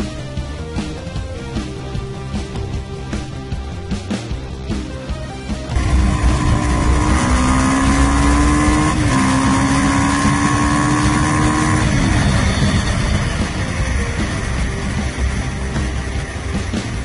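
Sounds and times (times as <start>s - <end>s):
motorcycle engine accelerating: 5.6s - 17.0s.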